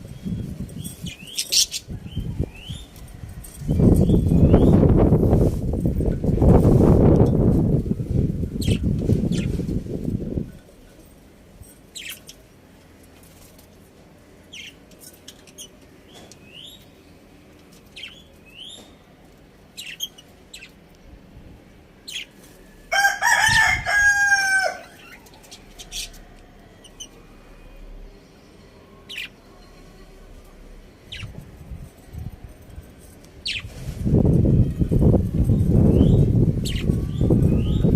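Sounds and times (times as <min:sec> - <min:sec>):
high bird calls and chirps: 0:00.1 - 0:03.0, 0:03.7 - 0:05.1, 0:19.7 - 0:20.8, 0:34.6 - 0:37.9
rooster crowing: 0:22.9 - 0:25.2.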